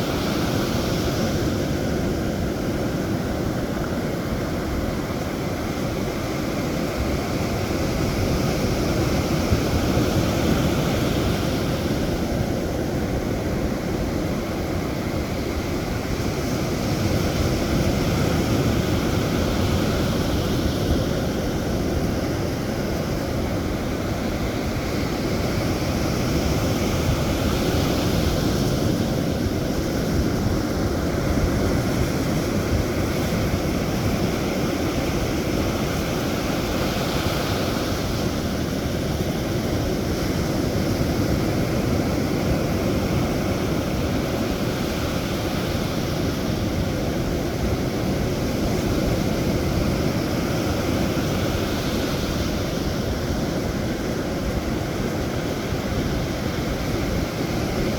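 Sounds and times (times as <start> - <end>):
wind: 0.0 - 57.9.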